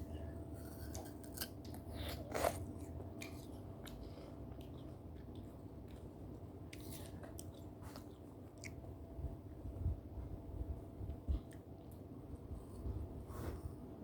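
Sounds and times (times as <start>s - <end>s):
person chewing fruit: 0.1s - 8.9s.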